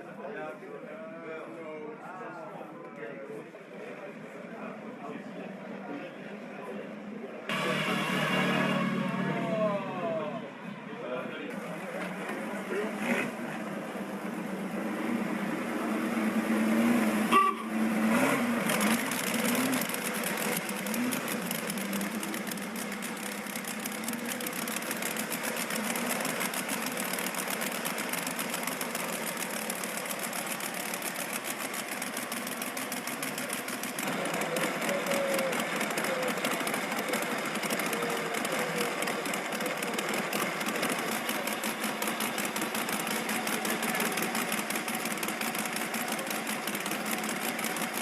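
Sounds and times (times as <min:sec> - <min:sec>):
motorcycle engine rattling: 0:18.1 - 0:48.0.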